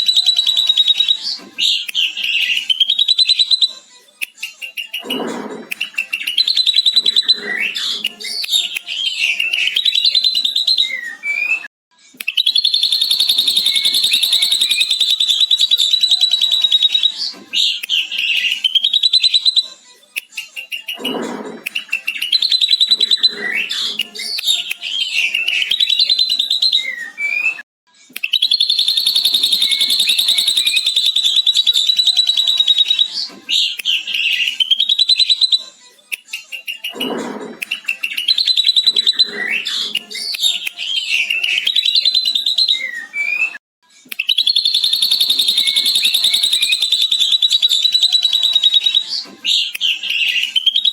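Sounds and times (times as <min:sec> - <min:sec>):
bird singing whistled notes: 0:00.0 - 0:03.8, 0:05.8 - 0:11.7, 0:12.3 - 0:19.7, 0:21.8 - 0:27.6, 0:28.2 - 0:35.7, 0:37.7 - 0:43.6, 0:44.2 - 0:50.9
rapid chattering bird trill: 0:12.3 - 0:19.6, 0:20.6 - 0:26.9, 0:28.3 - 0:35.6, 0:44.3 - 0:50.9.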